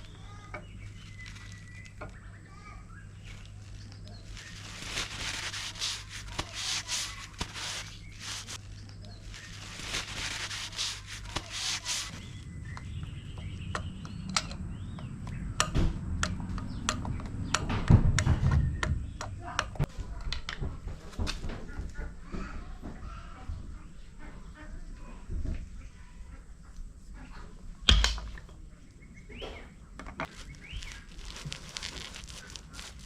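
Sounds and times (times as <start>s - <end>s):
hand scraping and rubbing: 0.8s - 2.0s, 3.2s - 12.4s, 30.3s - 33.0s.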